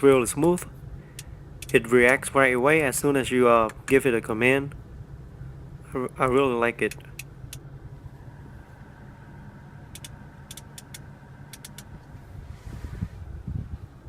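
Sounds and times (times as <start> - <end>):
low hum inside car cabin: 0.0 - 14.0
light clicks of buttons: 9.9 - 12.1.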